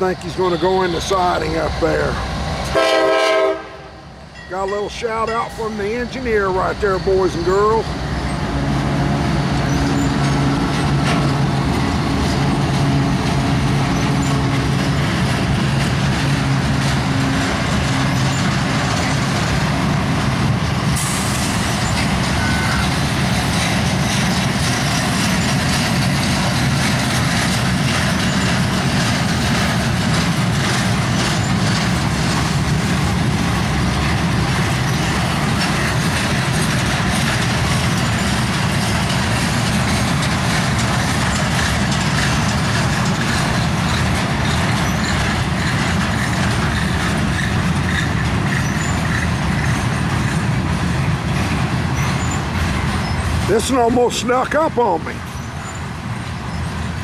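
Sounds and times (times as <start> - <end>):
low hum of diesel locomotives: 0.0 - 57.0
train wheels rolling on rail: 0.0 - 57.0.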